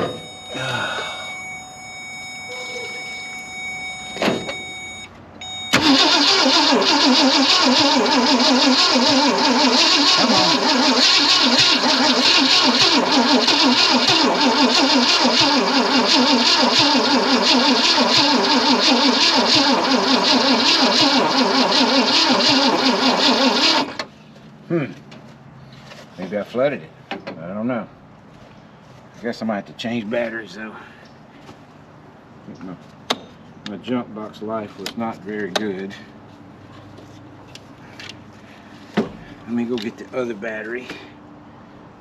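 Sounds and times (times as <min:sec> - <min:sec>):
car engine cranking on starter: 0:05.4 - 0:24.1.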